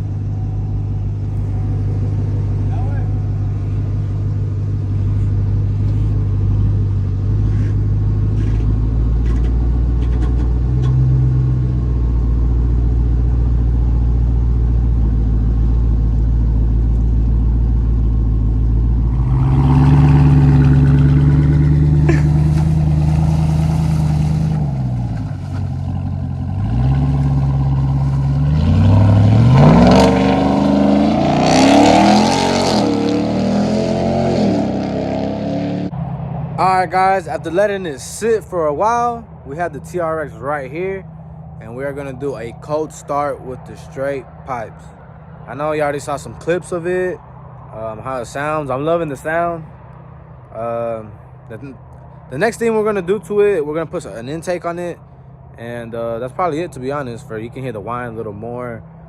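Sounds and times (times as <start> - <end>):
truck engine idling and revving: 0.0 - 59.0.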